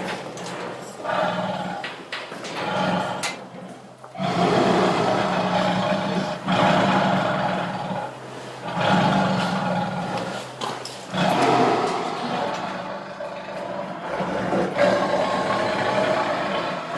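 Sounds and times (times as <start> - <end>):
tiger roaring and growling: 0.0 - 16.9.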